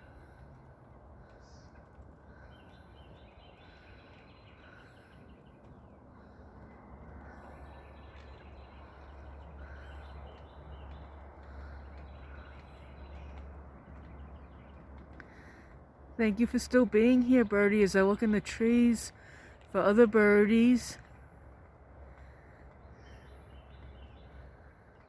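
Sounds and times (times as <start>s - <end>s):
songbirds chirping: 0.0s - 25.0s.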